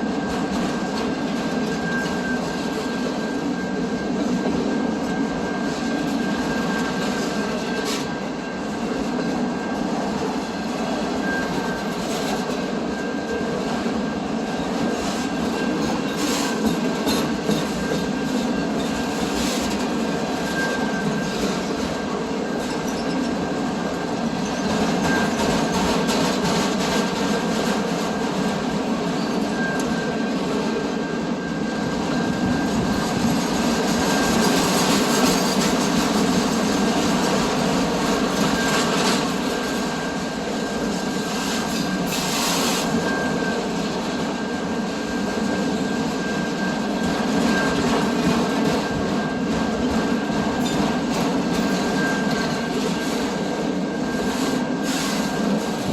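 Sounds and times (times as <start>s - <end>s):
train rumbling past: 0.0s - 55.9s
high wheel squeal: 11.0s - 13.2s, 14.5s - 28.3s, 29.0s - 55.9s.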